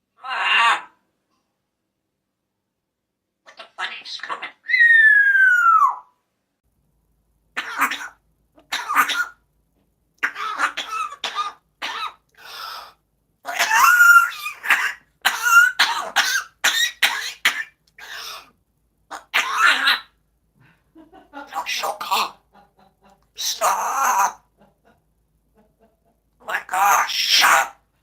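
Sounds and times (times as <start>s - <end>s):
parrot imitating coughing: 7.6s - 9.4s, 10.2s - 20.2s, 21.5s - 22.4s, 23.4s - 24.5s, 26.4s - 27.8s.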